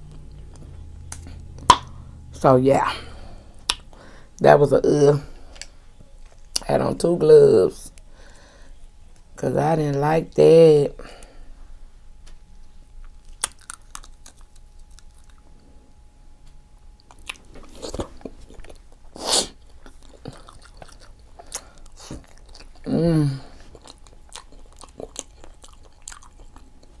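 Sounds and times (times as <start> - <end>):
wet mouth chewing: 13.0 - 15.5, 17.0 - 22.9, 23.5 - 27.0
person humming: 22.8 - 23.6.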